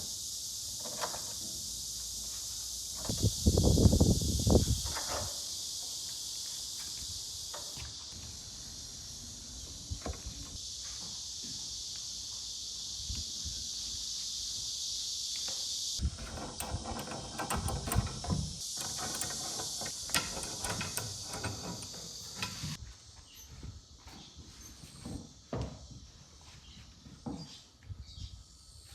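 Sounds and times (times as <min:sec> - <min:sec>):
insect chorus drone: 0:00.0 - 0:28.9
scattered knocks and clicks: 0:16.0 - 0:22.8.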